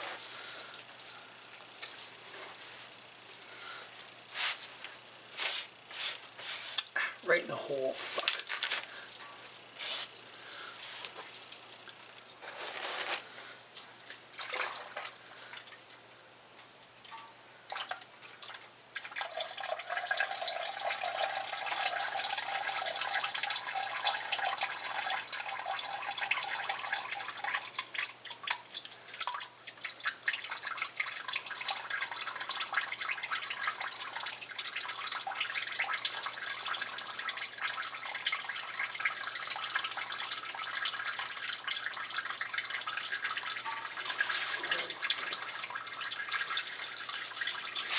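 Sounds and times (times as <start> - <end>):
oil stream splashing into pan: 16.8 - 47.9.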